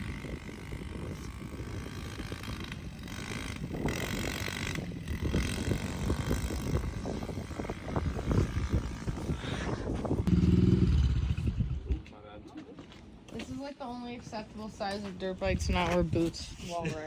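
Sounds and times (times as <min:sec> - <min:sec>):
dirt bike engine running: 0:00.0 - 0:12.0
wind buffeting microphone: 0:00.0 - 0:12.5, 0:13.2 - 0:17.0.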